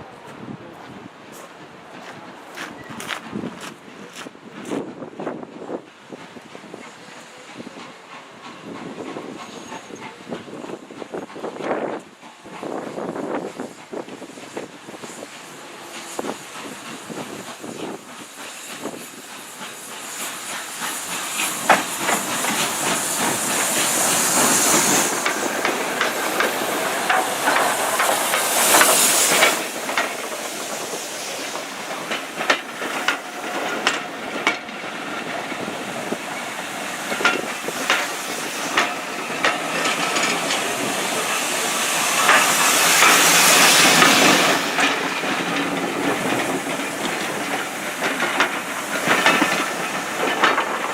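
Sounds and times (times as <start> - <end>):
steam hissing: 4.0 - 50.9
wheels clicking on rails: 13.8 - 50.9.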